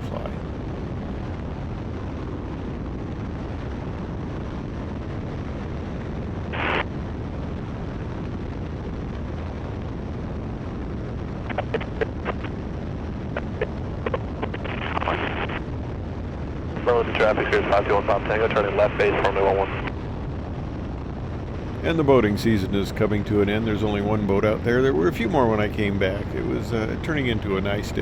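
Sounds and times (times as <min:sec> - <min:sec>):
wind in flight: 0:00.0 - 0:28.0
radio squelch: 0:06.5 - 0:06.9, 0:11.4 - 0:12.6, 0:13.3 - 0:15.6, 0:16.7 - 0:19.9, 0:21.5 - 0:28.0
sharp radio clicks: 0:11.5 - 0:12.6
biplane engine drone: 0:16.5 - 0:28.0.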